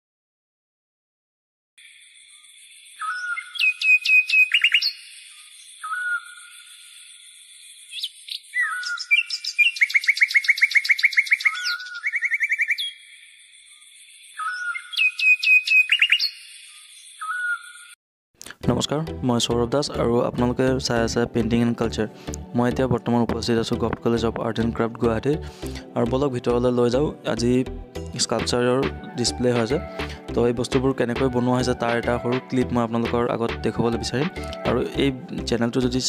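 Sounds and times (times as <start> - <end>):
birdsong whistles and trills: 2.1 - 18.0.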